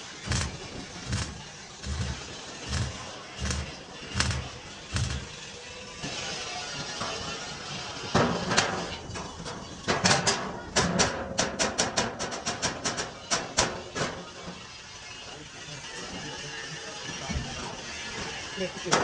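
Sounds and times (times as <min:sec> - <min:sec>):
hammer striking metal tank: 0:00.2 - 0:05.4.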